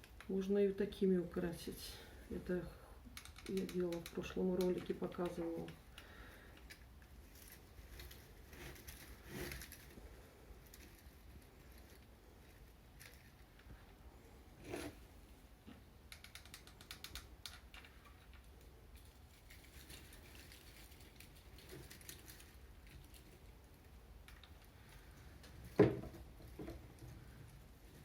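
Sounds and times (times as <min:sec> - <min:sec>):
faint rustling: 0:01.5 - 0:15.8, 0:17.8 - 0:28.0
fine crackling clicks: 0:03.1 - 0:08.2.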